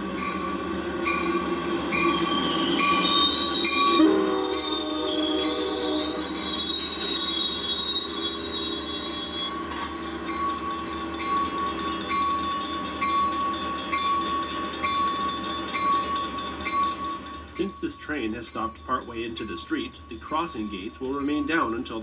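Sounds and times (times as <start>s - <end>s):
level-crossing warning bell ringing: 0.0s - 22.0s
train brake squeal: 0.2s - 17.4s
train horn: 2.1s - 9.6s.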